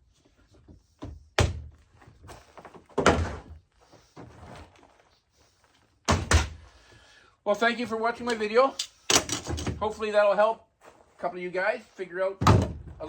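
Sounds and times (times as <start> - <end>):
dull heavy thumps: 12.4 - 13.0.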